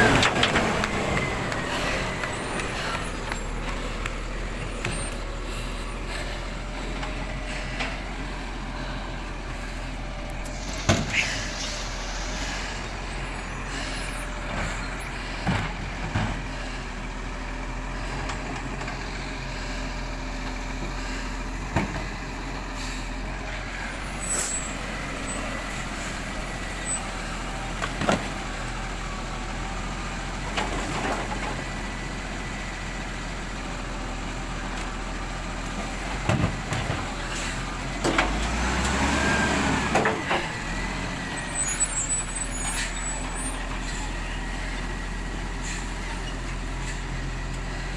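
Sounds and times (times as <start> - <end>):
diesel truck engine running: 0.0 - 47.9
loud mechanical noise: 0.0 - 47.9
air brake hisses: 0.8 - 15.6, 22.7 - 27.4, 41.3 - 44.2, 45.6 - 47.1.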